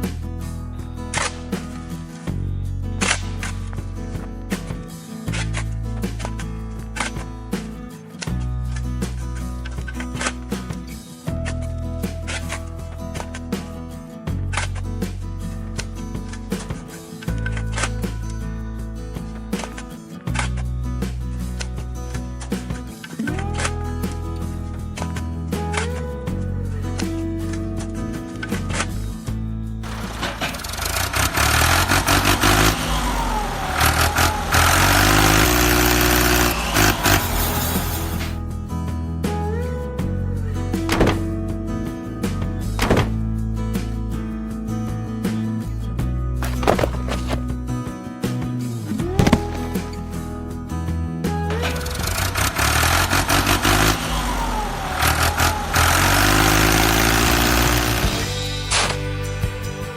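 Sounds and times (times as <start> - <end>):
background music: 0.0 - 59.9
engine running and revving: 29.8 - 38.4, 51.6 - 59.0.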